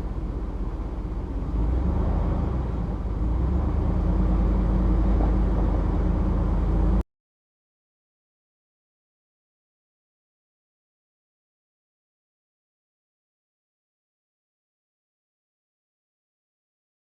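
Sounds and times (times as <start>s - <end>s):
truck engine and road rumble: 0.0s - 7.1s.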